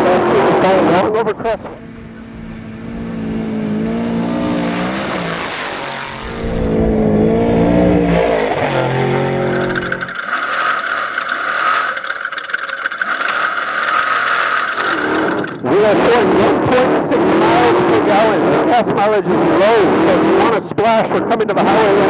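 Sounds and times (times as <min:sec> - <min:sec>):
race truck engine revving: 0:00.0 - 0:15.6
high whine with rattling: 0:01.3 - 0:15.6.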